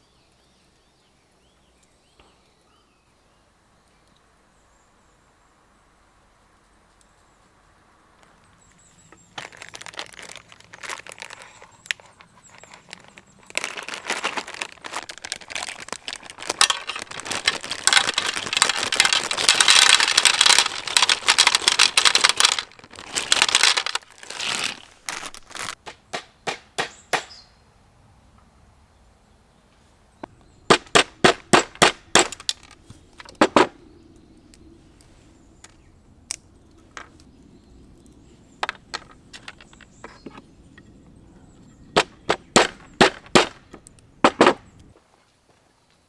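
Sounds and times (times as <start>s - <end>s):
paper or foil crinkling: 9.3s - 25.8s.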